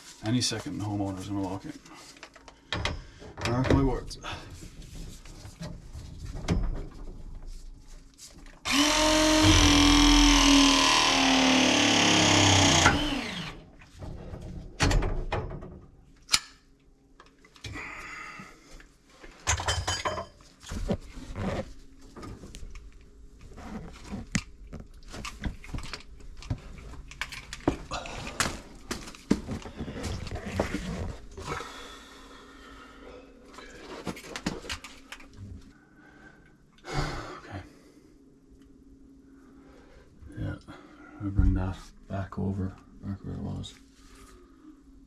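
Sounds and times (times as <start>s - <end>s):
handheld power tool running: 8.7s - 13.7s.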